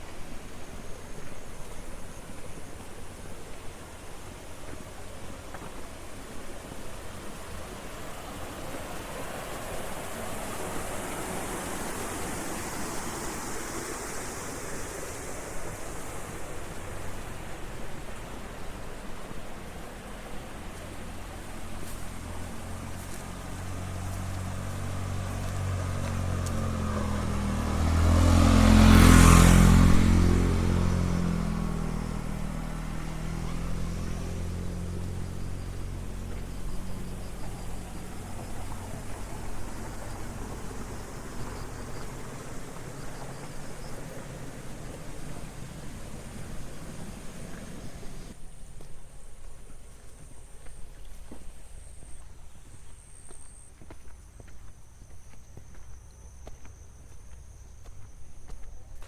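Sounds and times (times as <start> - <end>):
running water rushing: 0.0 - 51.8
steady low engine hum: 0.0 - 59.0
vehicle passing close by: 7.0 - 48.4.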